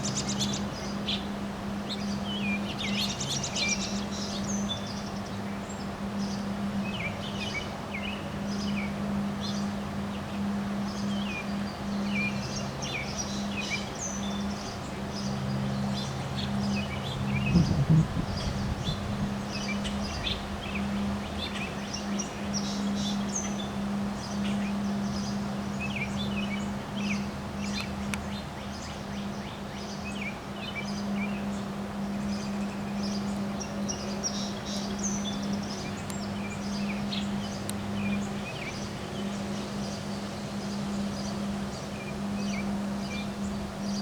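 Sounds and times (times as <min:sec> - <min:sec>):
small birds chirping: 0:01.9 - 0:44.0
low hum: 0:14.2 - 0:28.1
wind rushing: 0:17.4 - 0:19.3.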